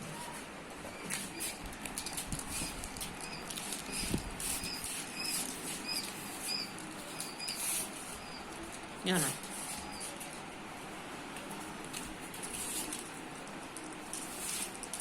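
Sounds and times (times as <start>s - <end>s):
parrot chick squeaking: 2.6s - 8.5s.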